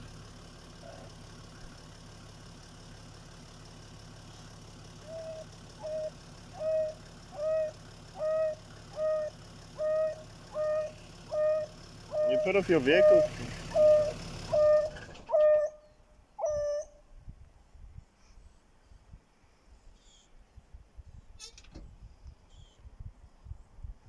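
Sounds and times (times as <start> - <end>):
wild dog hooting contact call: 5.0 - 17.0.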